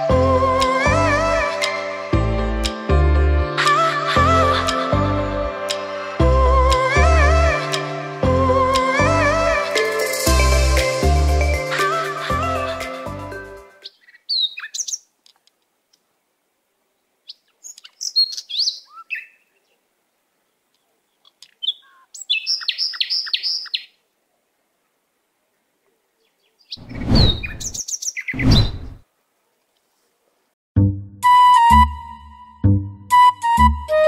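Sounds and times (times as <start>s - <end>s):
birds chirping: 26.1s - 29.0s.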